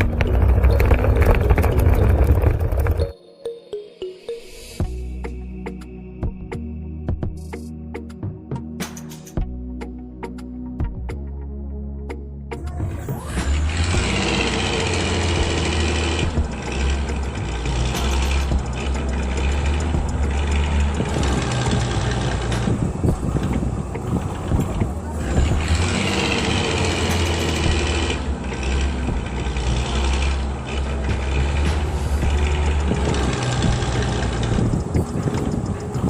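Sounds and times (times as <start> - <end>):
small tractor engine running: 0.0 - 3.1, 12.6 - 36.0.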